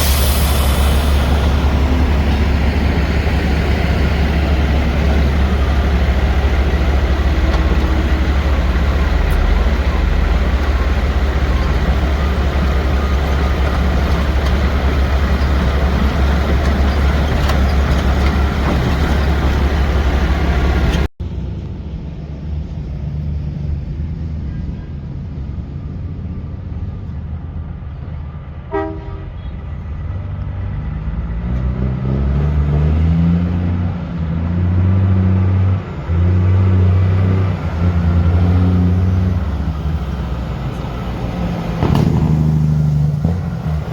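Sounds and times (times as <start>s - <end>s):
truck engine revving: 0.0s - 21.1s, 30.5s - 43.9s
quiet vehicle noise: 0.0s - 32.7s
heavy truck engine humming: 0.0s - 43.9s.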